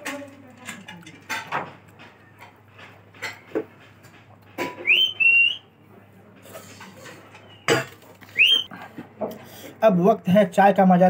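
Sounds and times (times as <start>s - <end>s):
bird whistled call: 4.8s - 5.6s, 8.3s - 8.7s.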